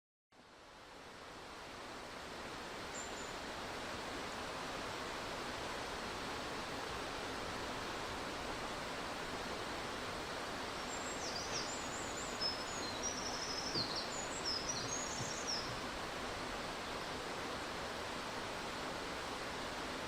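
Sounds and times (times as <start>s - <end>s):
stream rushing over rocks: 0.4s - 20.0s
small bird singing: 10.8s - 15.8s.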